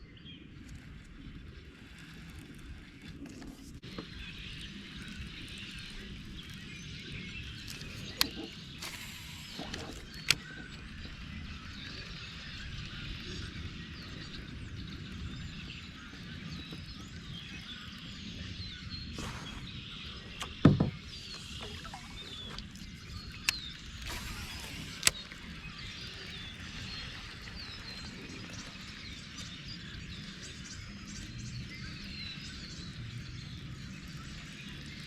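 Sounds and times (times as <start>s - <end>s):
faint bird chirps: 3.9s - 34.9s
sharp clicks: 7.6s - 11.1s, 20.4s - 26.7s
hollow knock against kayak: 20.4s - 21.0s.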